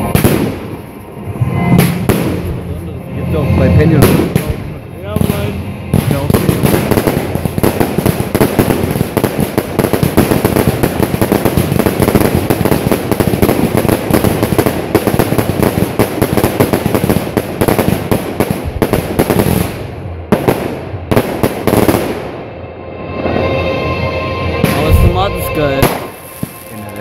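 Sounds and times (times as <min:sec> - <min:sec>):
fireworks banging and crackling: 0:00.0 - 0:02.7, 0:03.4 - 0:22.4, 0:24.6 - 0:27.0.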